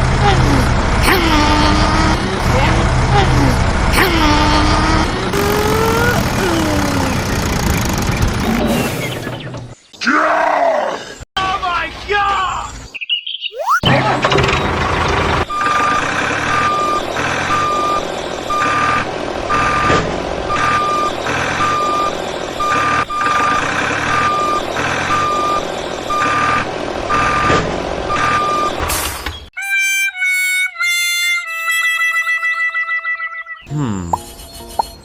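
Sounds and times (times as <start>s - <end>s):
motor running: 2.4s - 9.0s
reversing alarm beeping: 15.5s - 19.8s, 20.5s - 27.5s, 28.1s - 28.8s.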